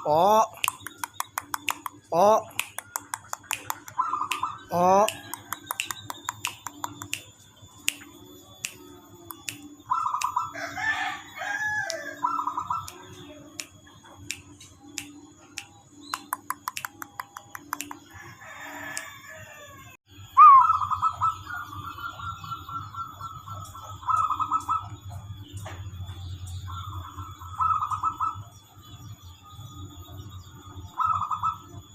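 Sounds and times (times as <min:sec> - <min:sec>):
doves trilled cooing: 0:00.0 - 0:31.9
rooster crowing: 0:10.1 - 0:12.8, 0:18.1 - 0:21.7.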